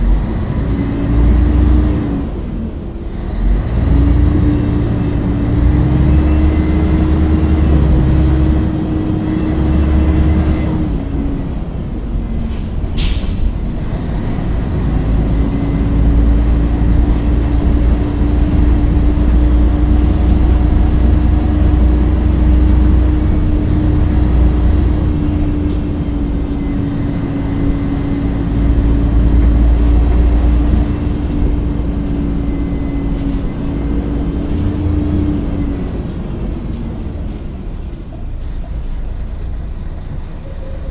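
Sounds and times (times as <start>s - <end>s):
bus diesel engine rumbling: 0.0s - 40.9s
steady engine whine: 2.1s - 36.8s
brief sharp hiss: 12.5s - 13.8s.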